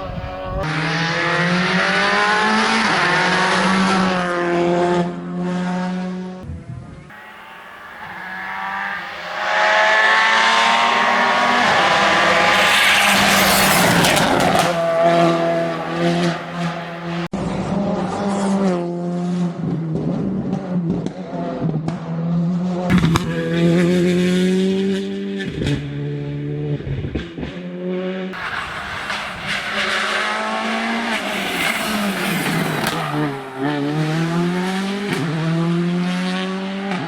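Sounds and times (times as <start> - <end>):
rally car engine revving past: 7.1 - 17.3, 28.4 - 37.0.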